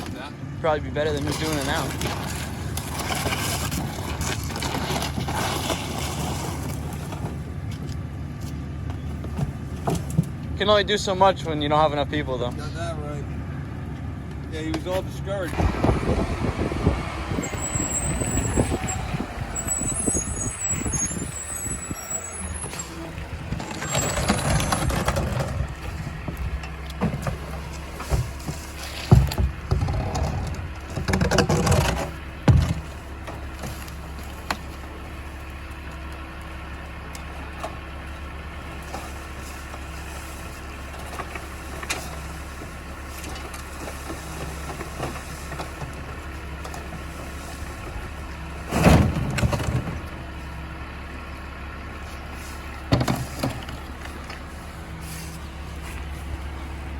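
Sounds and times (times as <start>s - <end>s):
garbage truck engine running: 0.0s - 56.9s
clunks and knocks: 15.5s - 34.9s, 47.8s - 50.4s, 52.8s - 54.5s.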